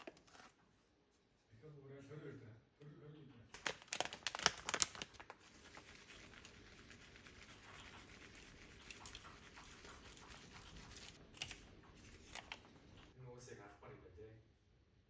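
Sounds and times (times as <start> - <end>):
crinkling and tapping: 3.5 - 6.6, 7.4 - 13.2.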